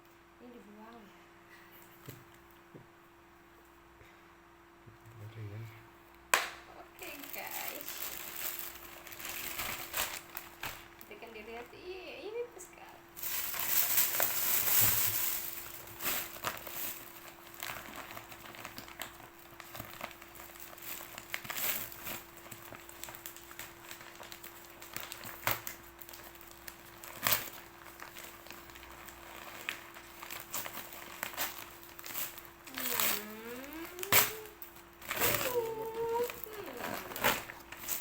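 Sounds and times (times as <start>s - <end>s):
faint steady hum: 0.0s - 38.0s
gift packaging crinkling: 7.0s - 12.4s, 13.1s - 38.0s.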